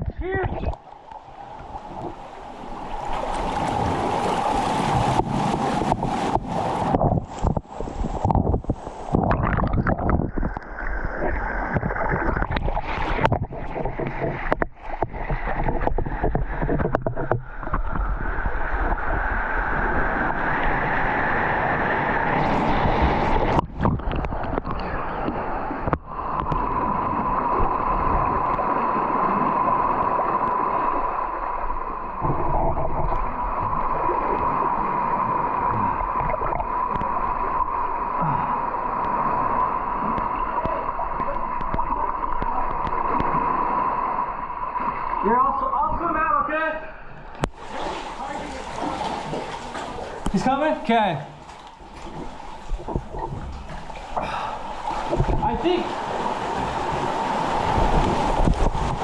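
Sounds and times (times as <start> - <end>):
water sloshing around kayak: 0.0 - 46.0, 47.1 - 59.0.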